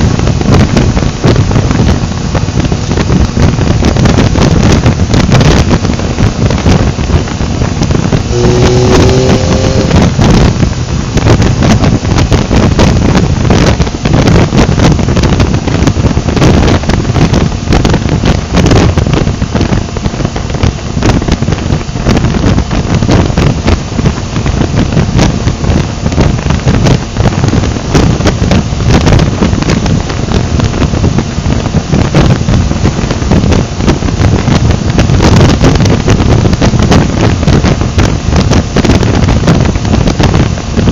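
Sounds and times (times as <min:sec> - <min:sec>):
wind rushing over microphone: 0:00.0 - 0:40.9
motorcycle engine droning: 0:00.7 - 0:40.9
short rising pitched note: 0:08.2 - 0:10.7.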